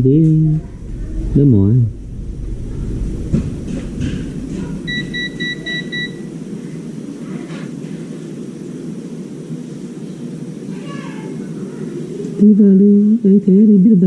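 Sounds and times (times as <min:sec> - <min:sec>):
steady low hum: 0:00.0 - 0:14.0
short high electronic beeps: 0:04.9 - 0:06.3.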